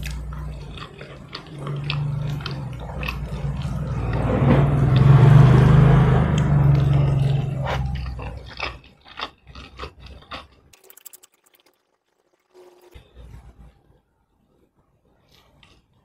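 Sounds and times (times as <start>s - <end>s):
chewing food: 0.0s - 13.0s
wet mouth clicks: 7.7s - 11.8s.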